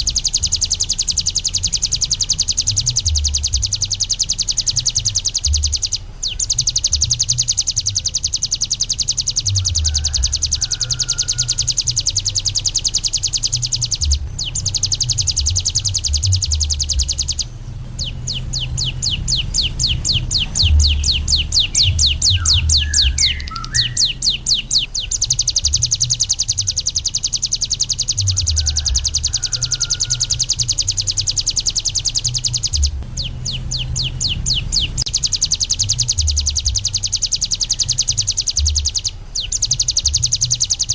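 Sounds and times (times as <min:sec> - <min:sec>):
low uneven rumble: 0:00.0 - 0:40.7
bird singing fast high trill: 0:00.0 - 0:40.9.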